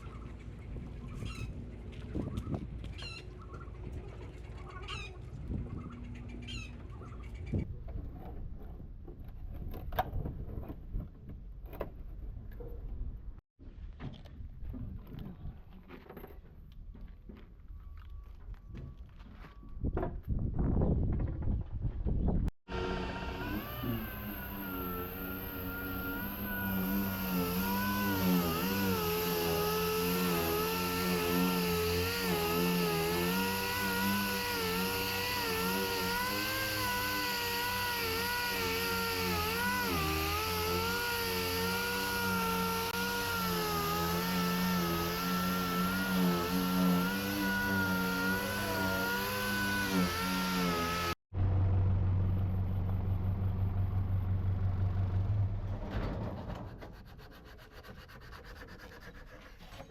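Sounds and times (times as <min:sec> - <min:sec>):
power tool motor running: 0:22.7 - 0:51.2.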